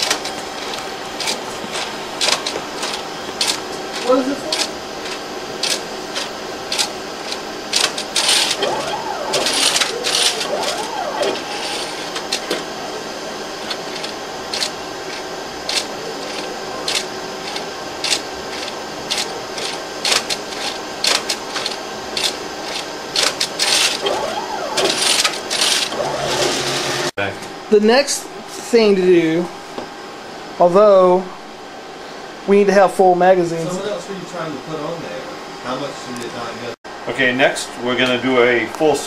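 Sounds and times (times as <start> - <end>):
mechanism clicks and clacks: 0.0 - 12.6, 13.6 - 26.6
robotic handler motor hum: 8.5 - 12.6, 24.0 - 27.1.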